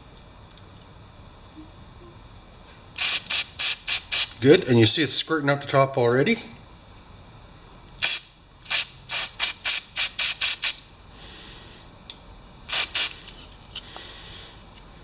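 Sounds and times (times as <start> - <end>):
aerosol spray hisses: 3.0 - 4.4, 8.0 - 10.9, 12.7 - 14.2.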